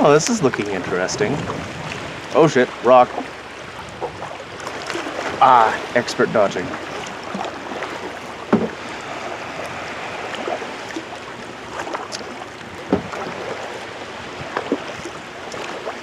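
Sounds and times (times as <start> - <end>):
paddle splashing water: 0.0 - 16.0
sharp splashes or knocks: 6.6 - 9.0, 10.2 - 13.8.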